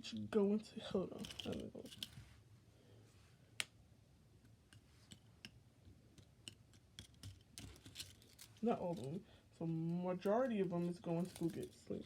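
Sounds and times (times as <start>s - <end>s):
faint clicks and taps: 4.4s - 8.2s.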